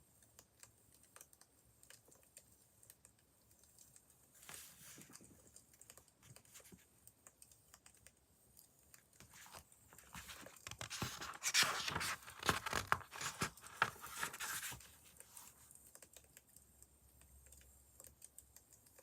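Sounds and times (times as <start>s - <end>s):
rustling: 9.2s - 15.6s.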